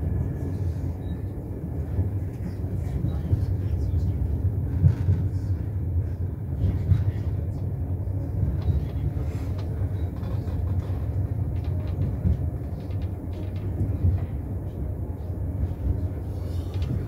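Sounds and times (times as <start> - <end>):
train cabin rumble: 0.0 - 17.0.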